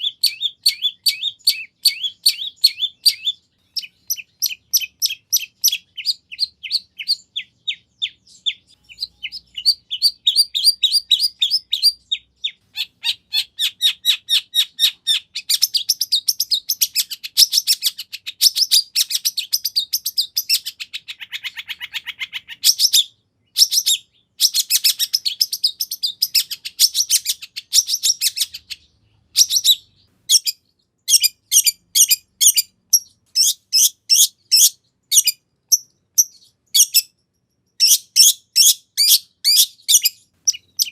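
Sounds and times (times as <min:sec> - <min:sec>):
bird chattering song: 0:00.0 - 0:40.9.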